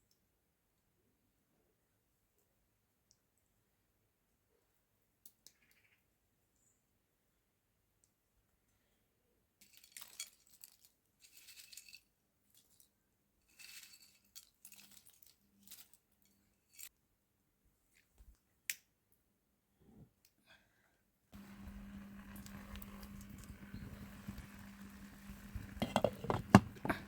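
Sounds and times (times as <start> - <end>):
light clinks and scrapes: 9.6 - 17.0, 21.4 - 27.0.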